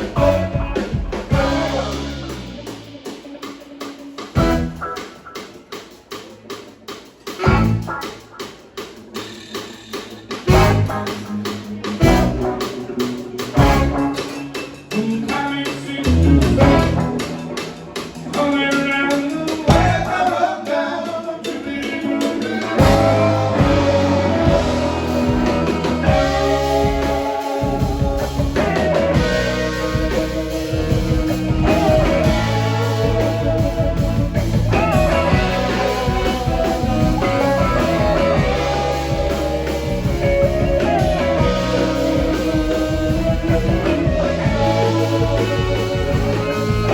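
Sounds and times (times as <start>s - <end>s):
electric guitar: 0.0s - 6.6s, 7.2s - 46.9s
live blues-rock band: 0.0s - 46.9s
drum hits: 16.1s - 17.6s.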